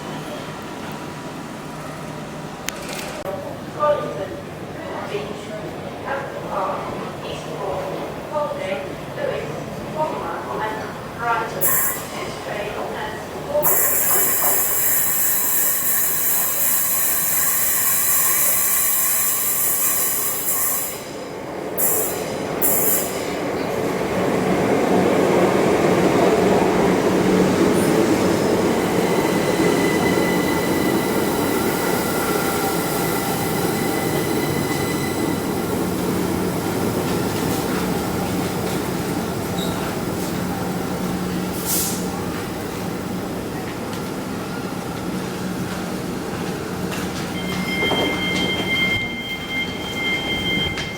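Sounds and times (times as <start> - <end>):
train wheels rumbling on rail: 10.8 - 50.9
train hiss: 13.6 - 21.2, 41.4 - 42.3
steady squealing tones: 47.4 - 50.9.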